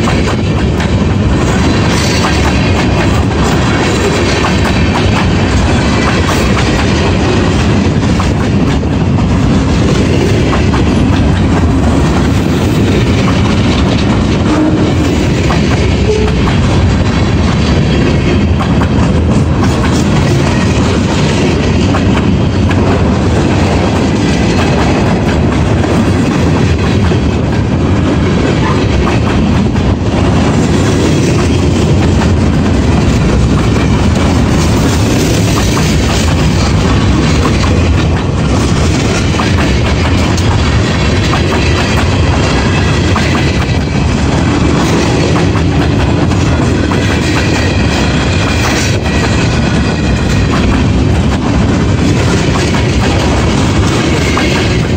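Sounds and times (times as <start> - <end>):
train wheels clattering over rails: 0.0 - 54.9.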